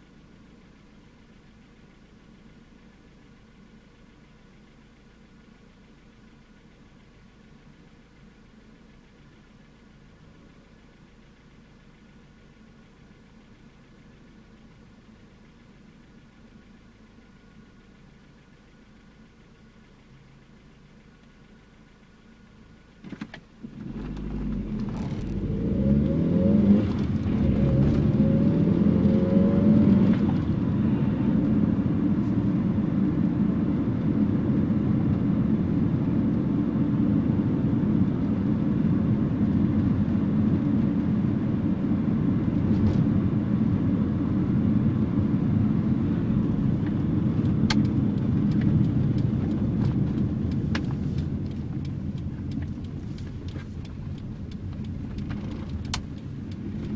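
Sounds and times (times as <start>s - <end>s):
car engine accelerating: 22.8s - 56.9s
road noise: 23.0s - 56.9s.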